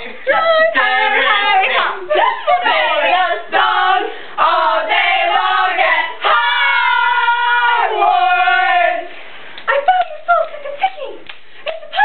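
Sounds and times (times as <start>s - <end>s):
girls singing loudly: 0.3s - 9.2s.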